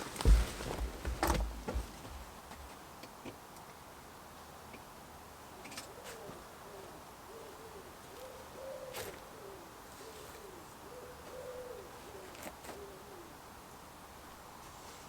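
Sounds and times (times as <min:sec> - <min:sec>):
bird hooting coos: 0:05.5 - 0:13.5.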